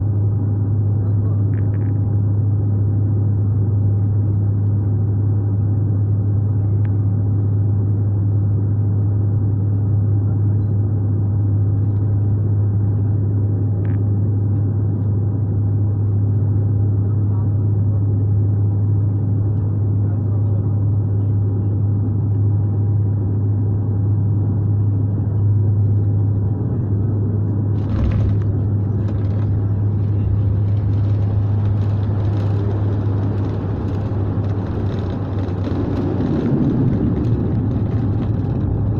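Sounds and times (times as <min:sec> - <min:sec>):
airplane engine and airflow drone: 0:00.0 - 0:38.9
rushing noise with rattles on runway: 0:00.7 - 0:05.9, 0:10.2 - 0:38.9
wheels touching down jolt: 0:27.8 - 0:38.9.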